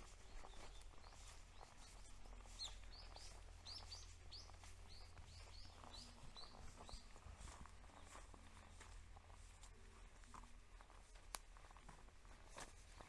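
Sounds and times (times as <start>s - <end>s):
small bird chirping: 0.0s - 8.8s.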